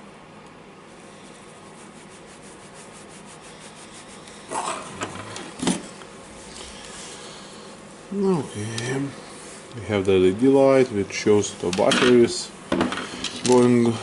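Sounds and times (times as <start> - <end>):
hands scratching and rubbing parts: 1.4 - 5.6, 13.1 - 13.9.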